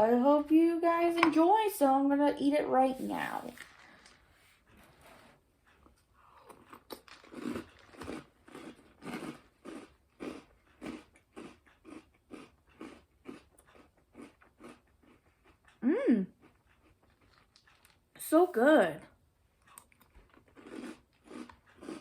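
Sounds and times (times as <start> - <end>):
person chewing crunchy cereal: 3.0 - 4.2, 6.2 - 15.8, 16.4 - 18.0, 19.6 - 22.0.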